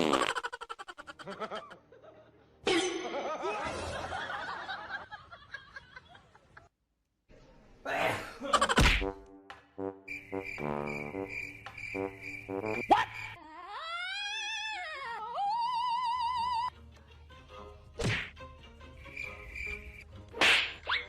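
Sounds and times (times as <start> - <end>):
person laughing: 0.2 - 1.8, 8.4 - 8.8.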